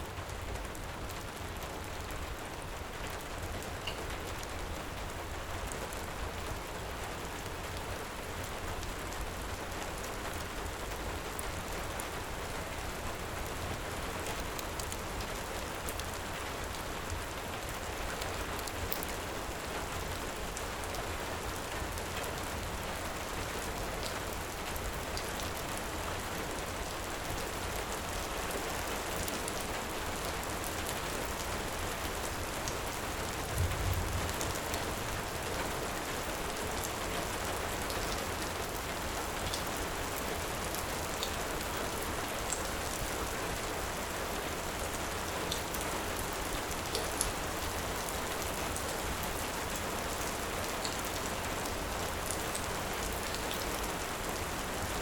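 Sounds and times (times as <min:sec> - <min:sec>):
heavy rain falling: 0:00.0 - 0:55.0
low rumble: 0:33.5 - 0:34.7.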